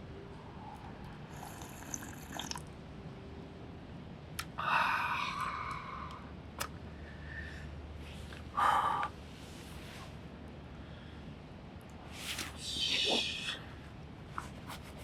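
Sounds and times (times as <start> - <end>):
liquid pouring into vessel: 1.4 - 2.7.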